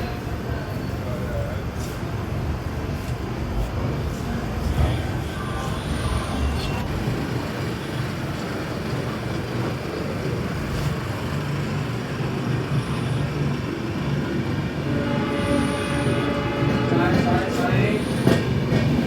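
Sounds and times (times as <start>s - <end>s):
train rumbling and hissing: 0.0s - 19.0s.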